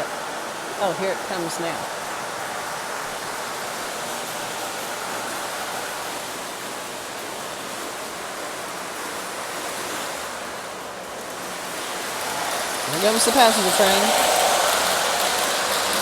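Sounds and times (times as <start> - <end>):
fountain water splashing: 11.9 - 16.0.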